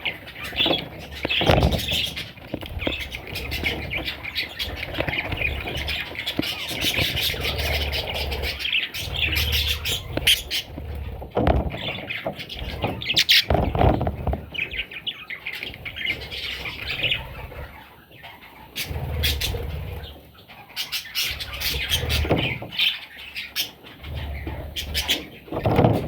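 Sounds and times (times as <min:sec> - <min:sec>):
wings flapping: 0:00.0 - 0:14.9
budgerigars chirping: 0:00.0 - 0:25.7.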